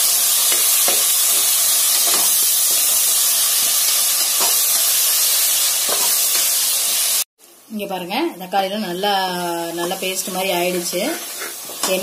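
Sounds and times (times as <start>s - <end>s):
tomatoes sizzling in hot oil: 0.0s - 12.0s
metal spatula scraping: 10.6s - 12.0s.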